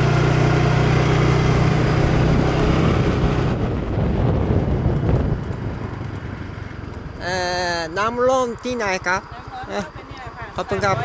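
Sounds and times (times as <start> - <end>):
motorcycle engine running: 0.0 - 11.0
wind noise on microphone: 1.5 - 7.6.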